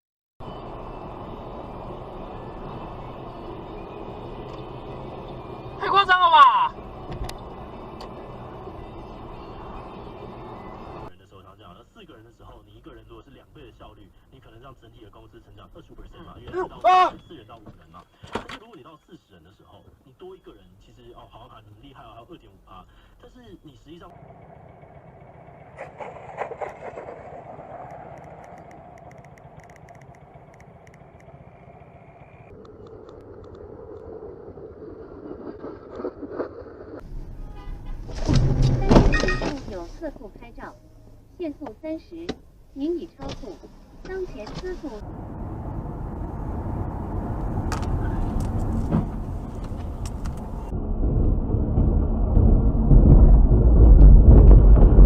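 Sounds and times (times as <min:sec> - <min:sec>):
car road and engine noise: 0:00.4 - 0:55.0.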